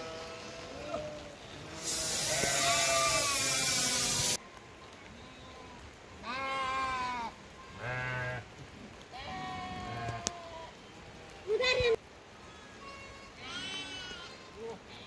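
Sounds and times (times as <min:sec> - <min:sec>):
sheep bleating: 0:00.0 - 0:04.3
loud hiss: 0:01.7 - 0:04.4.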